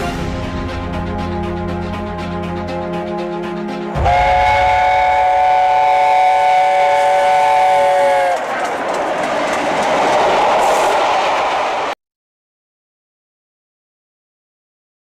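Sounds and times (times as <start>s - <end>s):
train whistle chord: 0.0s - 8.6s
train rushing noise: 0.0s - 12.0s.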